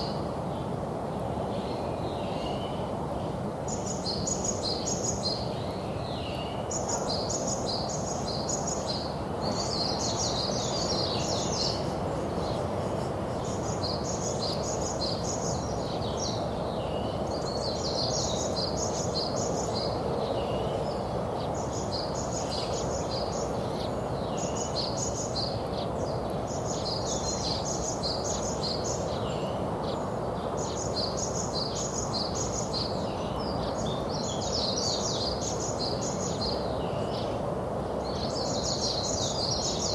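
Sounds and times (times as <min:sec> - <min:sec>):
background hiss and rumble: 0:00.0 - 0:39.9
songbird singing: 0:00.0 - 0:39.9.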